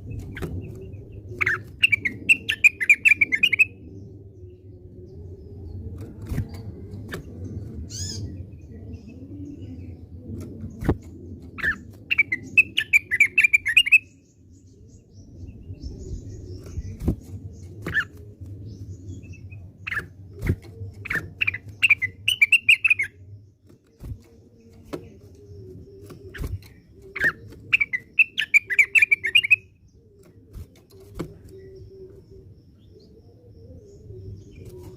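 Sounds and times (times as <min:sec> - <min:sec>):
bird warbling and chattering: 0:01.4 - 0:03.8, 0:10.8 - 0:14.0, 0:19.2 - 0:23.2, 0:24.0 - 0:32.5.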